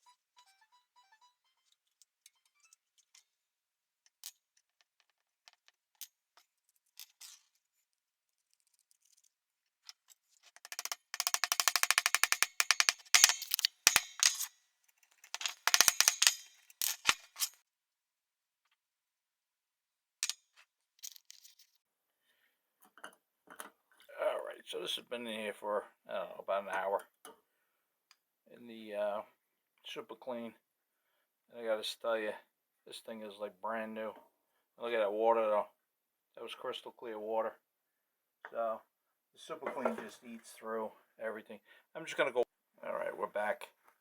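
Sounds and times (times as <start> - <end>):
small hard objects rattling: 10.5 - 17.6.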